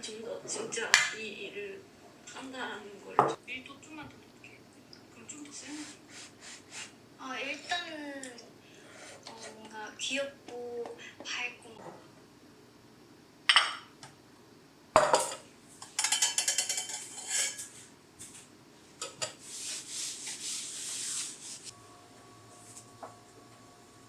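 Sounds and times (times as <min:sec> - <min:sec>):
dishes clinking: 0:13.5 - 0:13.9, 0:15.0 - 0:17.8, 0:19.0 - 0:19.4
dishes knocking and clattering: 0:15.0 - 0:17.7, 0:19.0 - 0:19.4
utensils scraping: 0:15.3 - 0:17.8.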